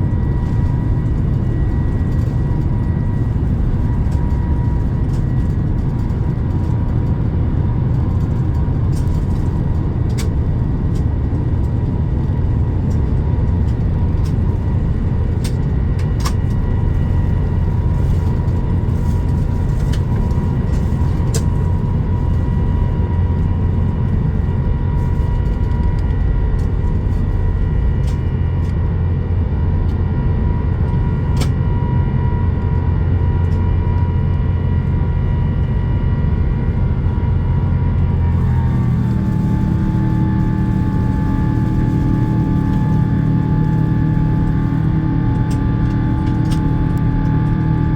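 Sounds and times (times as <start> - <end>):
high engine hum: 0.0 - 47.9
jet engines roaring: 0.0 - 47.9.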